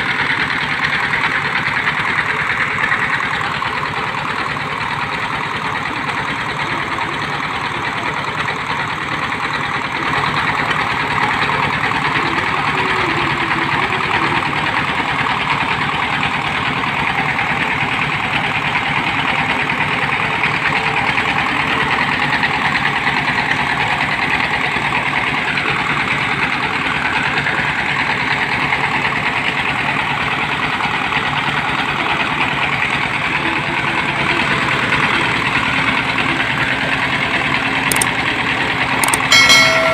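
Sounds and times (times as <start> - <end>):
drilling machine engine running: 0.0 - 39.9.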